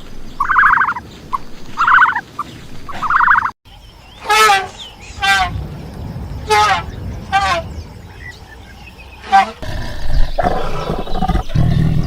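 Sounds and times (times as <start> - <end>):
turkey gobbling: 0.4 - 1.0, 1.8 - 2.2, 2.9 - 3.5.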